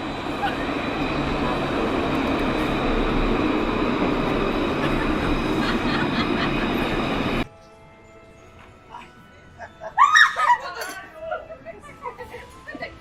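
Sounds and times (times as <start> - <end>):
loud mechanical rumble: 0.0 - 7.4.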